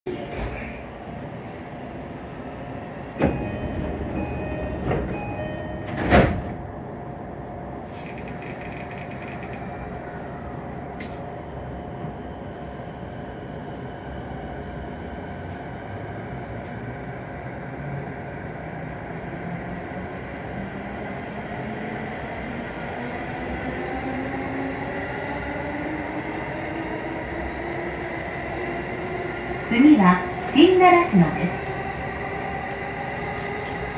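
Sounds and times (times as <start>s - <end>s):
short door chime: 3.2s - 6.2s
sliding doors closing with knocks: 5.8s - 6.6s.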